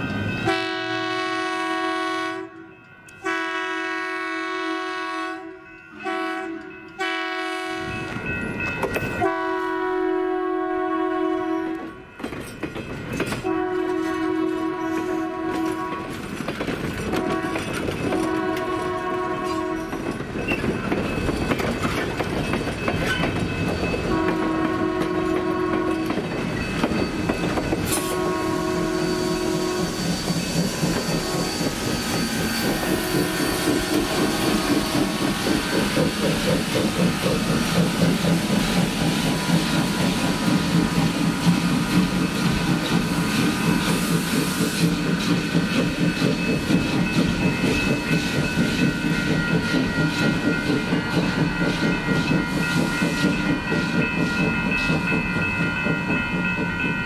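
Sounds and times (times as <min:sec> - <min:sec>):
locomotive chime horn: 0:00.0 - 0:12.2, 0:13.4 - 0:16.2, 0:17.1 - 0:20.2, 0:23.0 - 0:35.4
rhythmic locomotive beat: 0:00.0 - 0:57.0
train wheels clicking over rail joints: 0:11.7 - 0:57.0.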